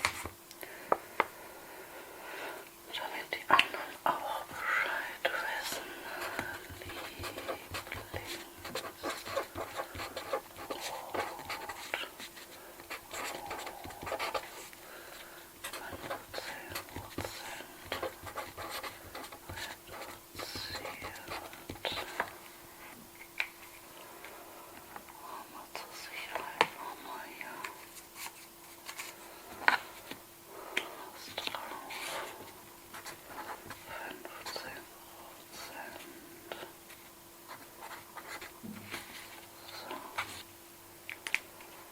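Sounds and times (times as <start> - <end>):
soft whispering: 2.4 - 22.9, 24.2 - 28.0, 30.5 - 36.8.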